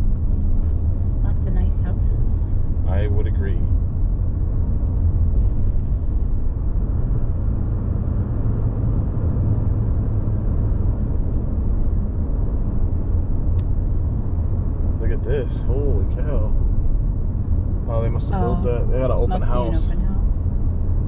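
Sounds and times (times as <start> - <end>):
car interior road rumble: 0.0 - 21.0.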